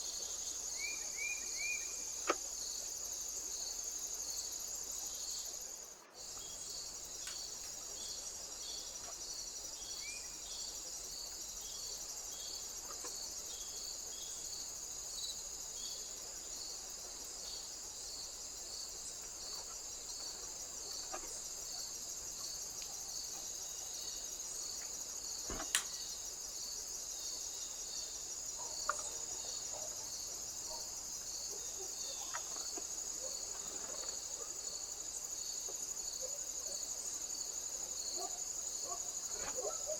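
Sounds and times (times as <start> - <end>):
crickets trilling: 0.0 - 39.9
insect chirping: 0.0 - 39.9
sharp click: 25.5 - 26.0.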